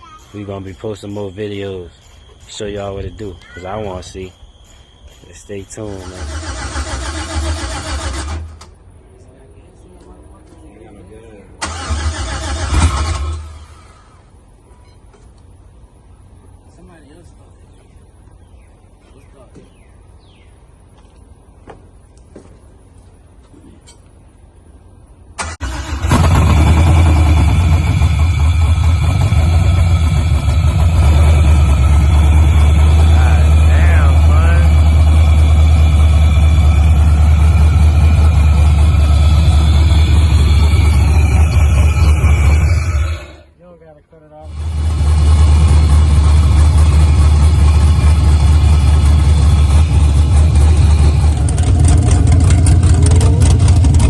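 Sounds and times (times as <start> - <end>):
engine cranking and running: 5.9 - 8.8, 11.6 - 14.2, 25.4 - 43.5, 44.5 - 54.0.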